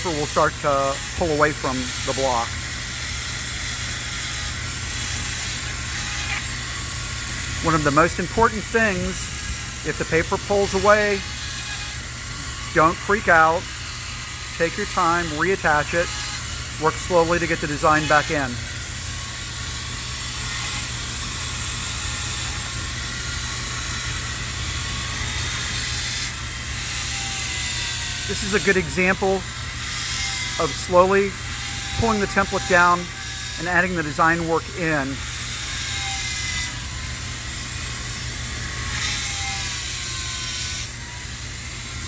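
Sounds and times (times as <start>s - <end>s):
power tool cutting ice: 0.0s - 42.0s.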